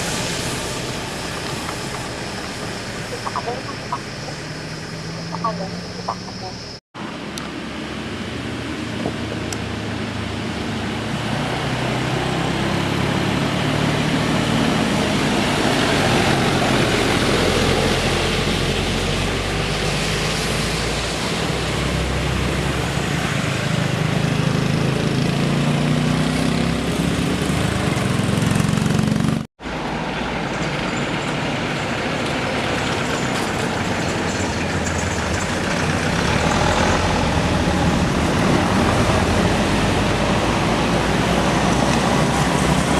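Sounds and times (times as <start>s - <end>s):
heavy vehicle engine passing: 0.0s - 42.9s.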